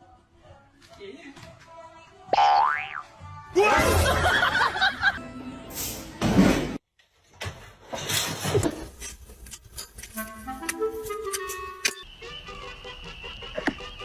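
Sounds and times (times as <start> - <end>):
music: 0.0 - 6.8, 10.1 - 14.0.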